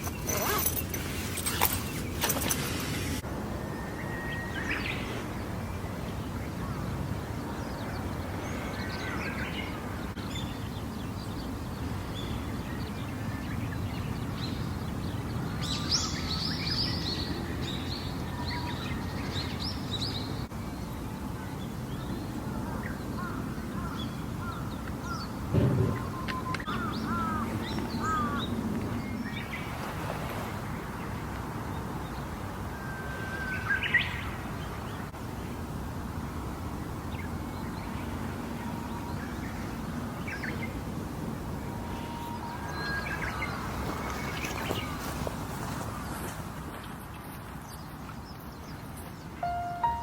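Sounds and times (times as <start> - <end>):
bird calls: 22.6 - 29.6
dull thump: 25.5 - 26.3.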